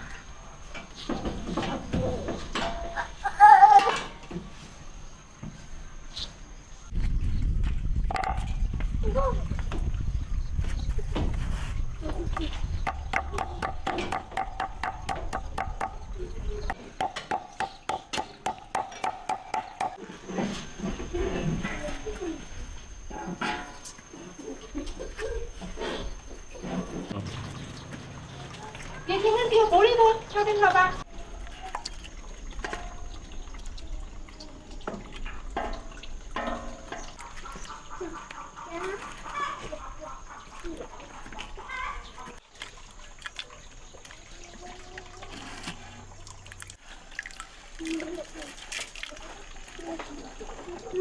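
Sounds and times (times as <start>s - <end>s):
water dripping and splashing: 7.9s - 51.0s
rapid knocks on wood: 12.8s - 16.1s, 16.7s - 20.0s.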